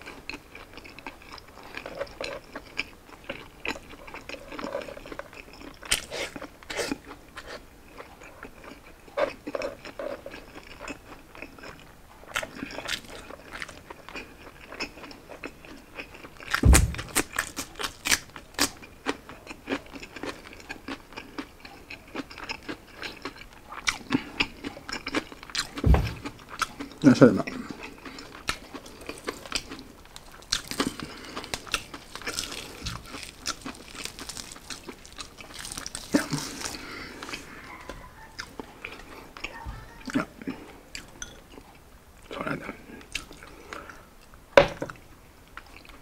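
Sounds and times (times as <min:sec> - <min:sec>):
chewing and crunching: 0:00.0 - 0:46.0
deep thump: 0:16.6 - 0:17.4, 0:25.8 - 0:26.4.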